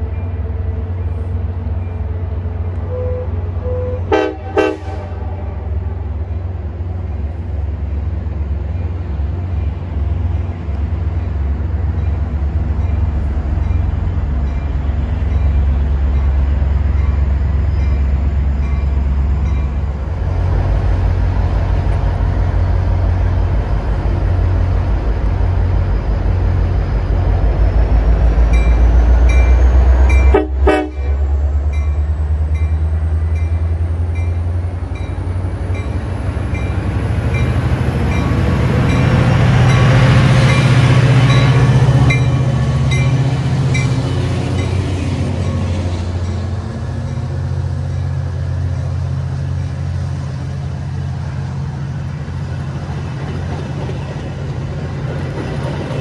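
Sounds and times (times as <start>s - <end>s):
diesel train engine rumbling: 0.0s - 56.0s.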